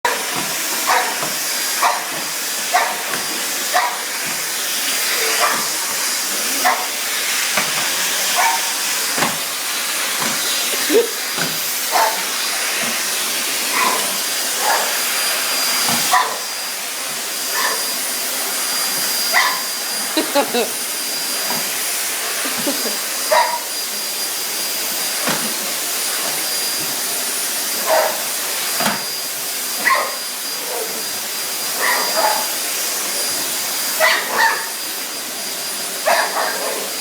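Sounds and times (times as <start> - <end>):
vacuum cleaner whining: 0.1 - 37.0
dog barking: 0.9 - 1.2, 1.8 - 2.1, 2.7 - 3.0, 3.7 - 4.0, 5.2 - 5.7, 6.6 - 6.9, 8.4 - 8.7, 11.9 - 12.3, 13.7 - 14.0, 14.6 - 14.9, 16.1 - 16.4, 17.5 - 17.8, 19.3 - 19.7, 23.3 - 23.7, 27.8 - 28.2, 29.8 - 30.2, 31.8 - 32.5, 34.0 - 34.7, 36.0 - 36.8.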